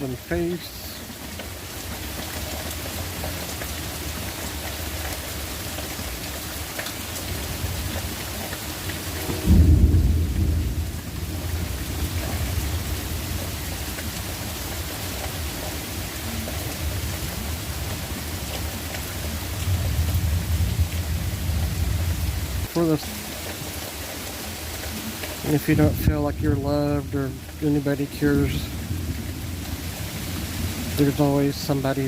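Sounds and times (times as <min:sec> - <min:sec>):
steady rain falling: 0:00.0 - 0:32.0
deep thunder rumble: 0:07.3 - 0:22.7, 0:25.6 - 0:27.5.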